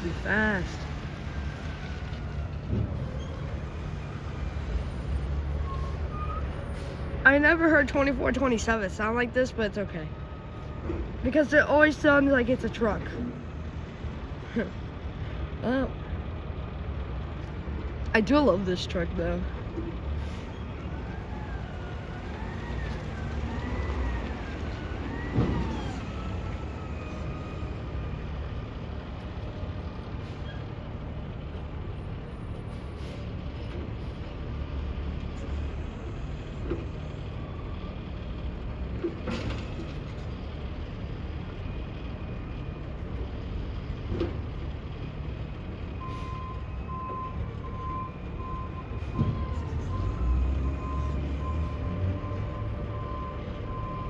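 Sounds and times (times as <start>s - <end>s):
reversing alarm beeping: 46.0s - 54.0s.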